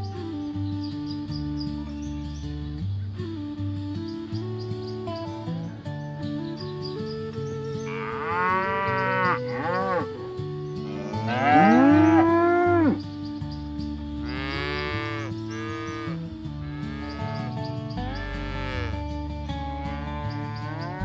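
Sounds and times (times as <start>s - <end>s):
cattle mooing: 7.9s - 10.1s, 10.8s - 13.0s, 14.2s - 19.0s, 19.7s - 21.0s.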